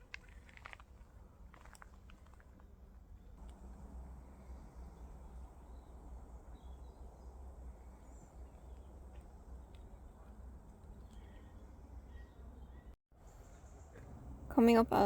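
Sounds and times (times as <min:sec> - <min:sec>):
faint bird chirps: 0:10.1 - 0:14.6.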